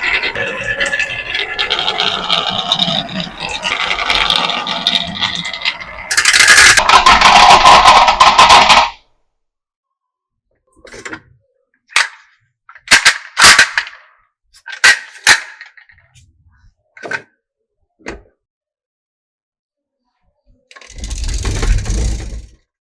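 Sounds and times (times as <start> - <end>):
marbles rattling down wooden run: 0.0 - 9.0
sharp marble clacks: 0.0 - 9.0.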